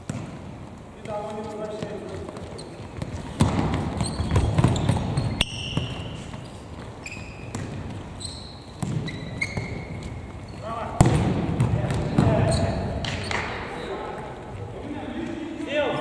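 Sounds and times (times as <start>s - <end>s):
ball thuds: 0.0s - 14.2s
shoes squeaking on court floor: 0.0s - 16.0s.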